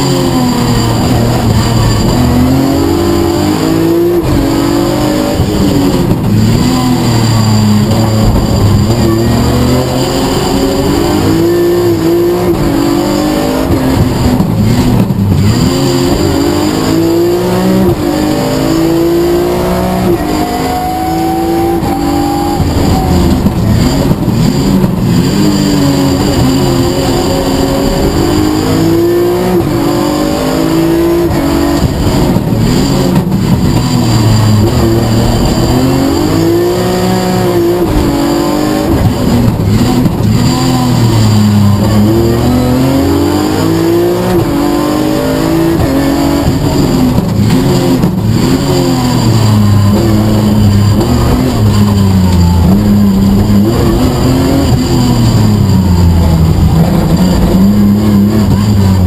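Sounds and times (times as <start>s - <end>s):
car engine revving through gears: 0.0s - 59.0s
road noise: 0.0s - 59.0s.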